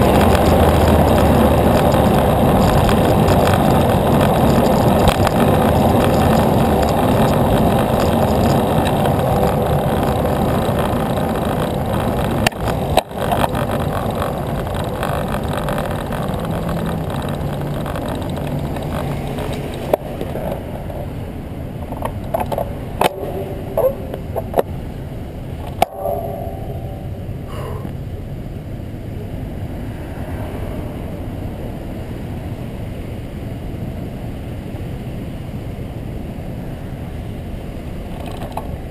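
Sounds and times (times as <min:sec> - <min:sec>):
sharp clicks and knocks: 0:00.0 - 0:21.1, 0:21.8 - 0:24.8, 0:25.6 - 0:27.2, 0:38.1 - 0:38.7
bicycle road noise: 0:00.0 - 0:38.9.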